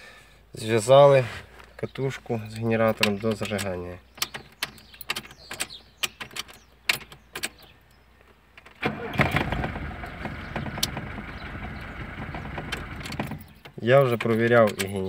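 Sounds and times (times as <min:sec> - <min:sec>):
car engine starting and running: 0:08.6 - 0:14.4
ignition key and switch clicks: 0:12.7 - 0:15.0.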